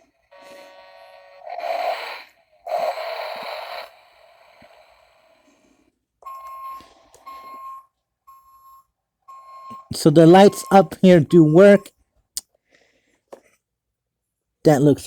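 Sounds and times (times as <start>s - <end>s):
electronic beeping tone: 9.3s - 11.9s.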